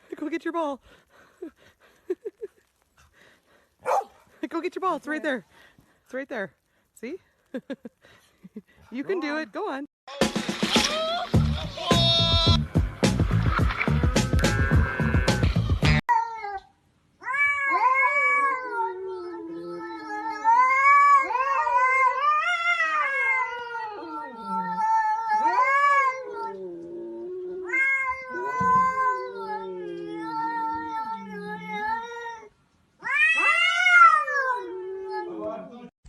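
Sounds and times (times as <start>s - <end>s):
animal yowling: 17.3s - 35.6s.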